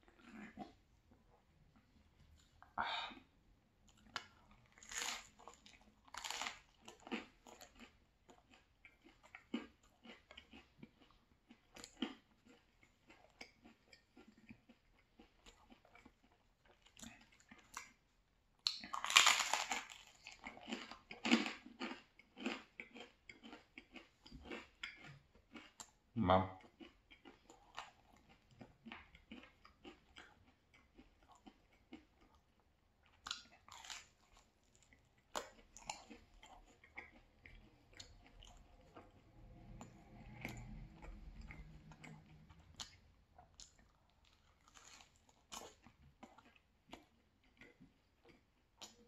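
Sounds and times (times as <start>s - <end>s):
person chewing crunchy food: 0.0s - 49.0s.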